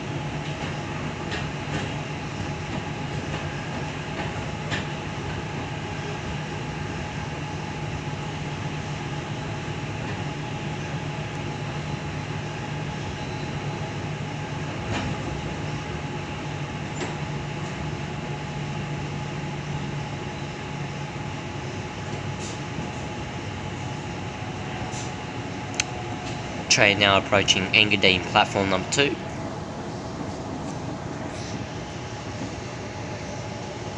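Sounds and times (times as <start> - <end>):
electric train rumbling: 0.0 - 33.9.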